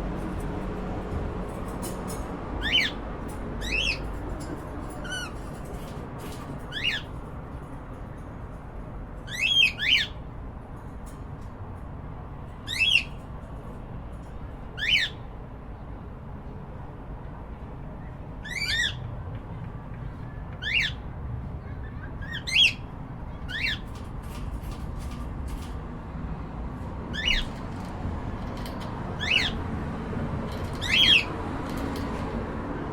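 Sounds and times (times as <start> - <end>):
low background hum: 0.0 - 32.9
cockatiels squawking: 2.6 - 3.0, 3.6 - 4.0, 6.7 - 7.1, 9.3 - 10.2, 14.8 - 15.2, 20.6 - 21.0, 21.9 - 24.0, 27.1 - 27.6, 29.2 - 29.6, 30.7 - 31.3.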